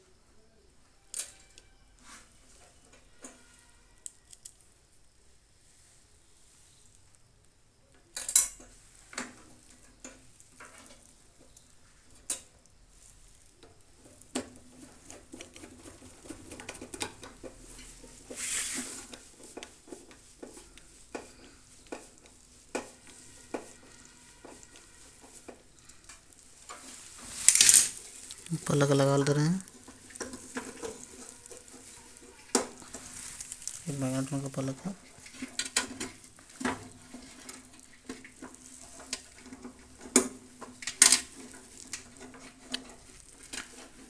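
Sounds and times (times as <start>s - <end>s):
metal scrape: 17.7s - 44.0s
metal tools clicking and clinking: 23.5s - 37.6s.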